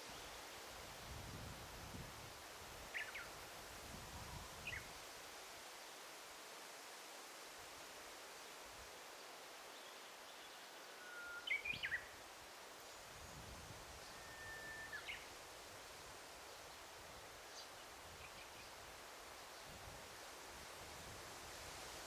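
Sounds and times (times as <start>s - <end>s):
soft steady hiss: 0.0s - 22.0s
songbird singing: 2.9s - 3.4s, 4.3s - 5.0s, 9.7s - 12.2s, 12.8s - 15.4s, 16.5s - 18.8s.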